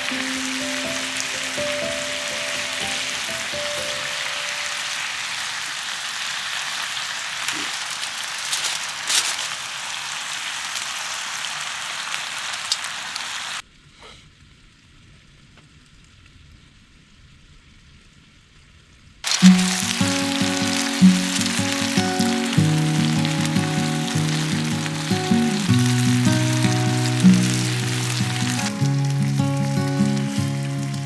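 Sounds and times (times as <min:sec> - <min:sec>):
music: 0:00.0 - 0:05.0, 0:19.4 - 0:31.0
food sizzling in a pan: 0:00.0 - 0:13.6, 0:19.2 - 0:31.0.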